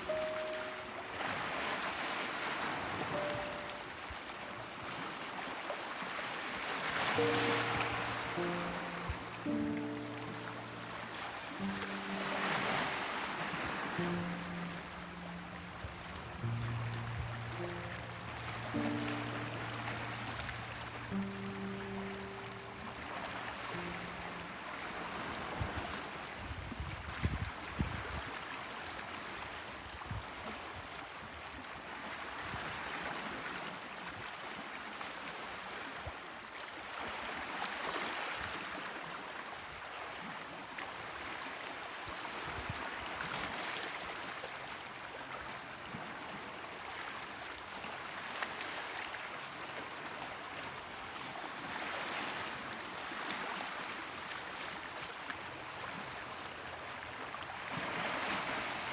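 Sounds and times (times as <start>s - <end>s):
waves washing on shore: 0.0s - 30.8s, 41.1s - 58.9s.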